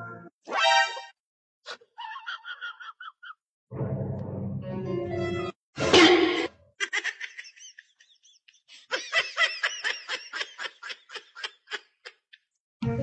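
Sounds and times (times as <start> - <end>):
high-pitched laughter: 1.7 - 3.4, 6.0 - 12.5.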